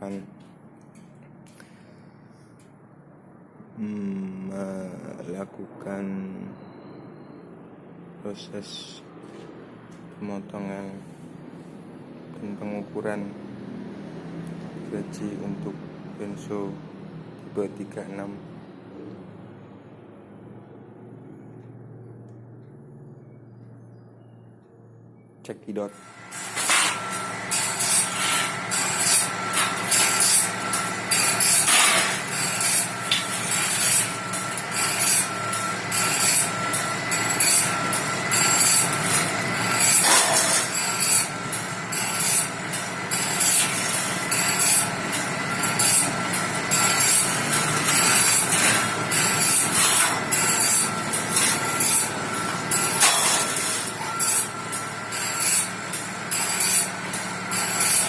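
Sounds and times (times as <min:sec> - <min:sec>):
machine hum: 0:00.0 - 0:58.0
saw rasping strokes: 0:26.0 - 0:58.0.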